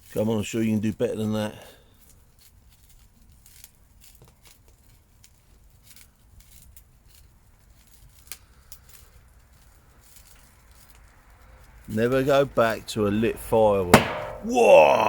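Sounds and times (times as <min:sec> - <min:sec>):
fire crackling in metal drum: 0:13.5 - 0:15.0.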